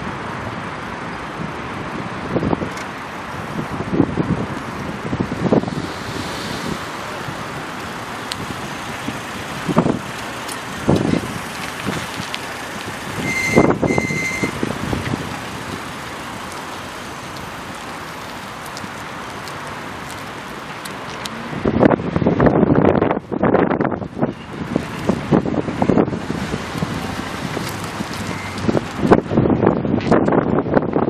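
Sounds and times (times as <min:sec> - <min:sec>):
traffic: 0:00.0 - 0:31.0
wind noise: 0:00.0 - 0:31.0
high electronic beeps: 0:13.2 - 0:14.6.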